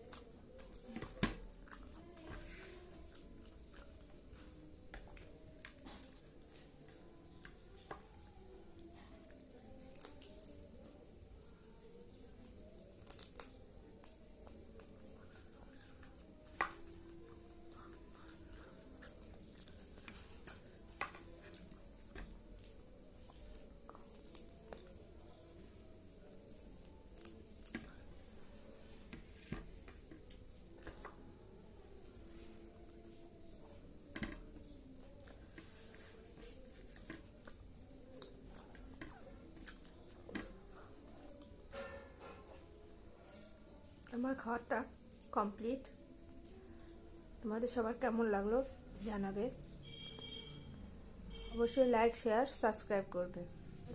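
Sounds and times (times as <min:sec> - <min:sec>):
person chewing food: 0:00.0 - 0:42.0.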